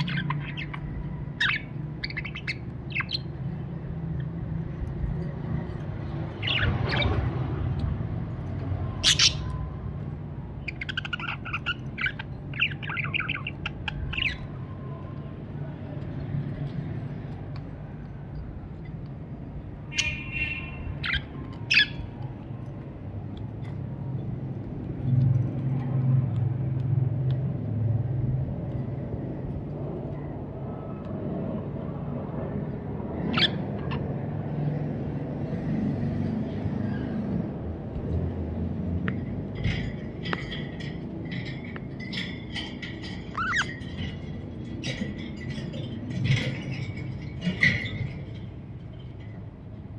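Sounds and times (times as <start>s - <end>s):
budgerigar chirping: 9.0s - 9.6s.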